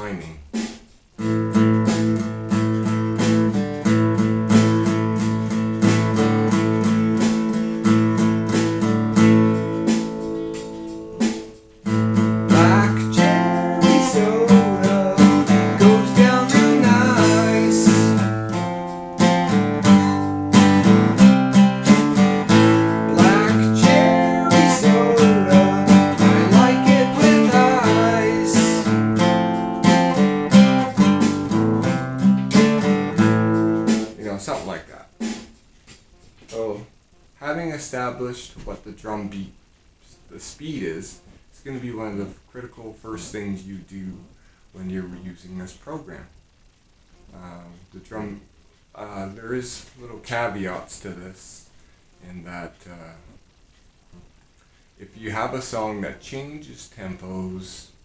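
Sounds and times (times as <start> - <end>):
picked guitar melody: 1.2 - 34.2
strummed guitar chords: 1.2 - 34.2.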